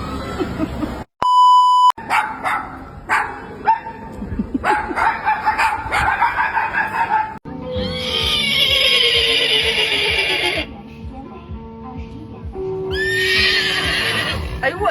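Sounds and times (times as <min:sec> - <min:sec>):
dog barking: 0:02.0 - 0:04.0, 0:04.6 - 0:07.4.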